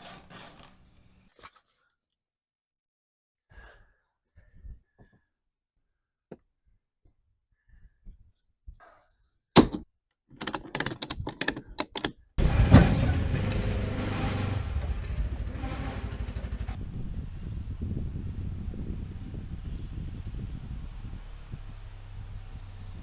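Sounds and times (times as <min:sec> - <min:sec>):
clicks and rattles: 0:10.4 - 0:16.8
heavy thunk: 0:12.4 - 0:16.8
engine running steadily: 0:12.4 - 0:23.0.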